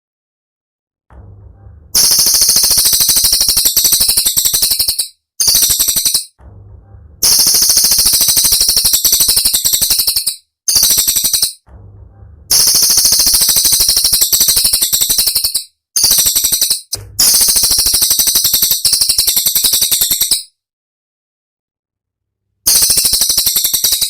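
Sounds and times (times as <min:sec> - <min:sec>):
bird singing high trills: 0:02.0 - 0:06.4, 0:22.7 - 0:24.0.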